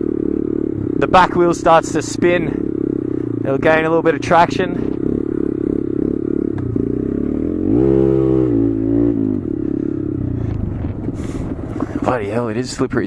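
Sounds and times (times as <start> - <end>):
motorcycle engine revving: 0.0 - 12.7.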